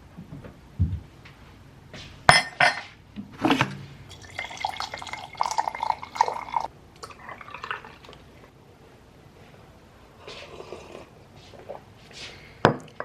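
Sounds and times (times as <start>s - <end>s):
liquid pouring into a cup: 4.1s - 8.3s.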